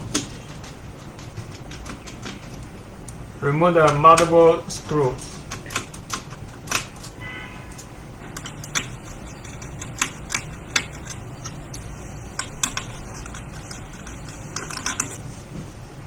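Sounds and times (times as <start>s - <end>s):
low steady hum: 0.0s - 16.0s
screwdriver clicking on laptop: 8.3s - 15.2s
loose screws tapping: 8.4s - 15.2s.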